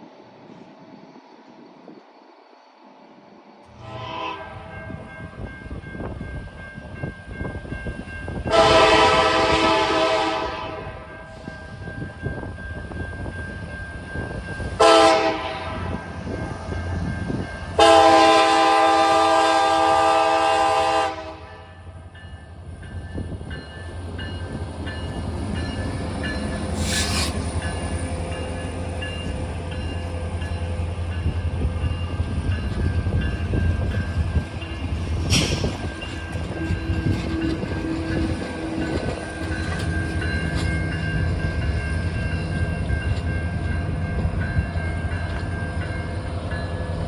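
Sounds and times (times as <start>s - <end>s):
locomotive horn blasts: 3.8s - 5.1s, 8.5s - 11.1s, 14.8s - 16.0s, 17.8s - 21.6s
brief hisses: 26.8s - 27.4s, 35.3s - 35.8s.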